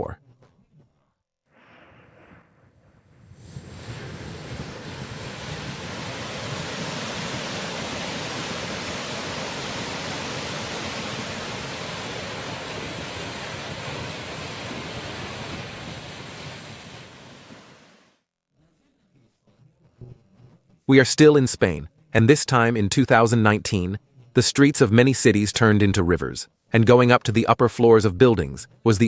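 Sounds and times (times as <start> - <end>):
floodwater rushing: 3.4 - 18.0.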